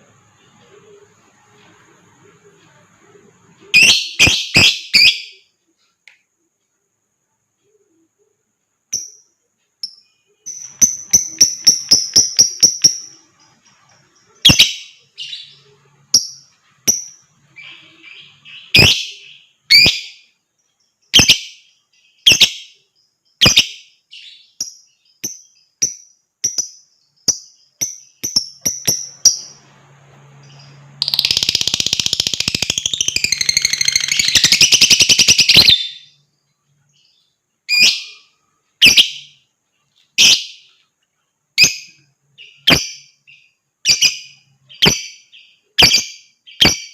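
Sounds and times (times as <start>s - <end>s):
bird chirping: 0.0s - 46.9s
bird chattering trill: 30.5s - 36.2s.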